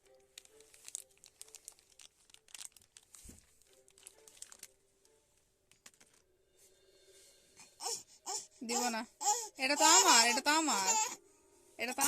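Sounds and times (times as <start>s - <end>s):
plastic wrapper crinkling: 0.0s - 6.2s.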